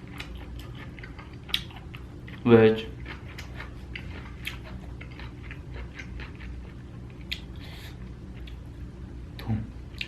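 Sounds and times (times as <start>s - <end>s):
person chewing food: 0.0s - 10.0s
wet mouth clicks and smacks: 7.2s - 7.5s.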